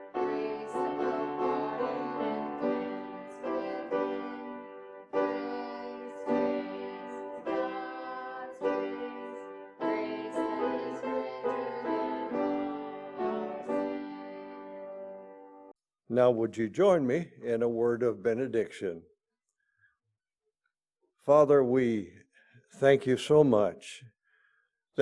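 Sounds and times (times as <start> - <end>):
slow piano chords: 0.0 - 15.7.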